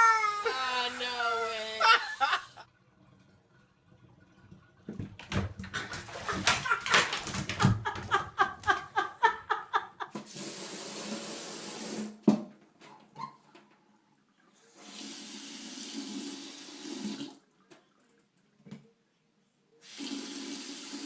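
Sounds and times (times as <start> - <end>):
dog crying: 0.0 - 2.6
running water: 0.0 - 3.2.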